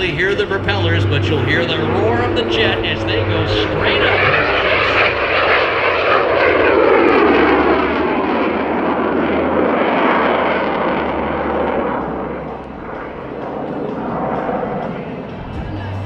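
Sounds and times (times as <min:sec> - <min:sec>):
propeller aircraft passing by: 0:00.0 - 0:16.0.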